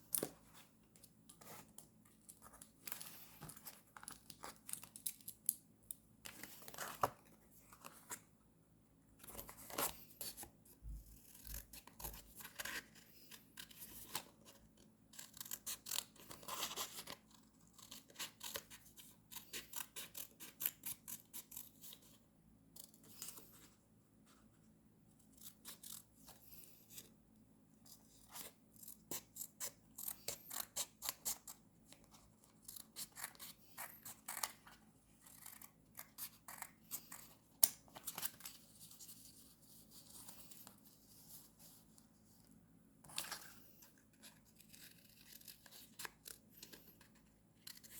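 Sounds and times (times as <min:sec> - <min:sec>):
scissors snipping paper: 0:11.1 - 0:23.5, 0:25.4 - 0:26.6, 0:28.3 - 0:38.5, 0:44.3 - 0:47.9.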